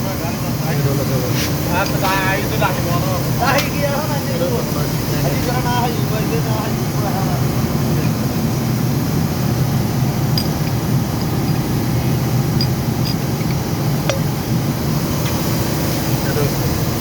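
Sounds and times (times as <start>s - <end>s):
low machinery drone: 0.0s - 17.0s
light metallic clinks: 10.3s - 14.4s.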